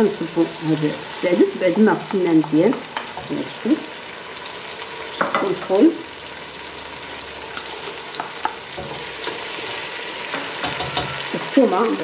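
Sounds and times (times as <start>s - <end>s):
vegetables sizzling in a pot: 0.0s - 12.0s.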